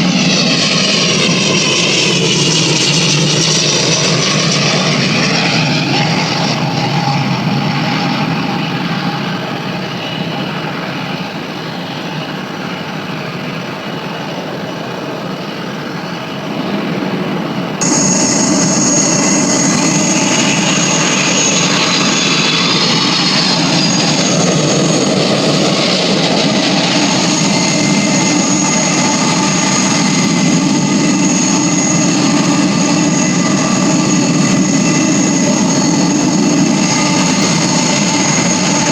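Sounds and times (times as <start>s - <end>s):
jet engine rushing whine: 0.0s - 38.9s.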